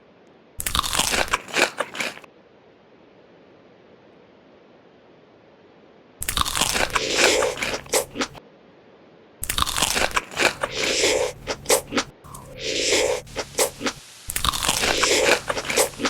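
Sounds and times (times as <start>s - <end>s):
crunchy chewing of crisp food: 0.6s - 2.3s, 6.2s - 8.4s, 9.4s - 16.0s.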